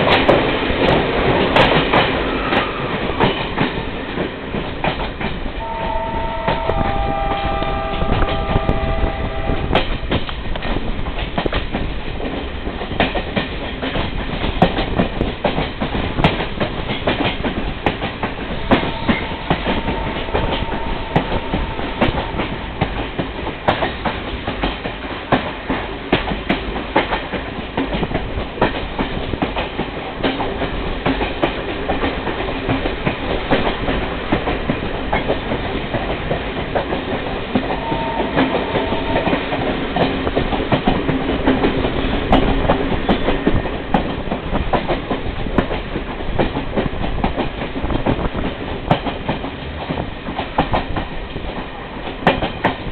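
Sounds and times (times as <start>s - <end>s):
train wheels clattering on rails: 0.0s - 52.9s
multi-tone train horn: 5.6s - 10.2s, 18.5s - 22.8s, 37.5s - 40.5s.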